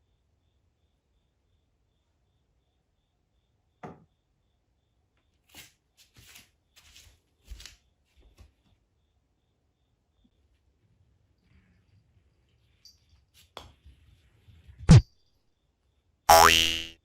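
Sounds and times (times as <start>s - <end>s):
rustling and scraping: 5.5s - 8.5s.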